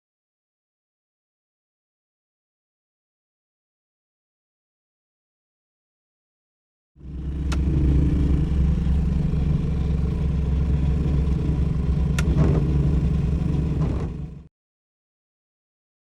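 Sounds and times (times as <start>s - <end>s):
car engine running: 7.0s - 14.5s
sharp clicks: 7.4s - 7.9s, 11.2s - 12.8s.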